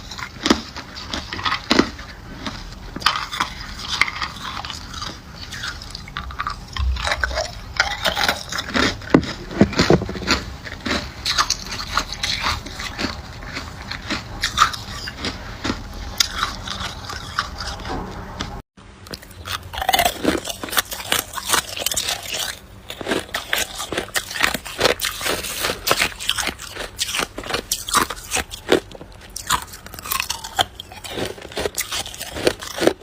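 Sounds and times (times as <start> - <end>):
chewing ice: 0.0 - 17.9, 19.0 - 33.0.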